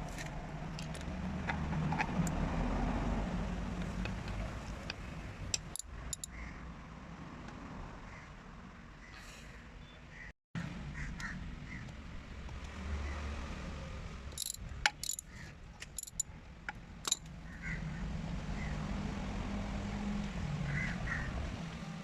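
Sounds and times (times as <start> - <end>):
sharp clicks and knocks: 4.3 - 6.3, 14.4 - 15.2, 15.9 - 16.2.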